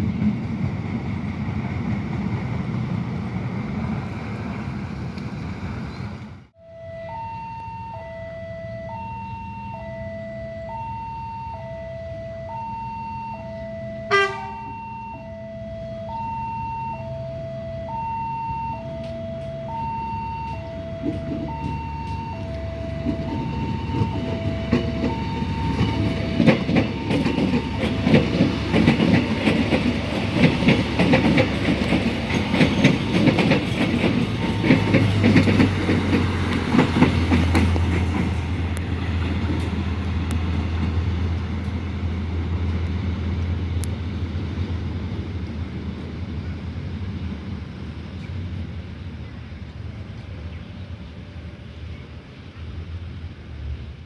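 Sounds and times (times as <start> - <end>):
level crossing alarm: 6.6 - 36.0
train wheels clattering over rails: 20.4 - 48.8.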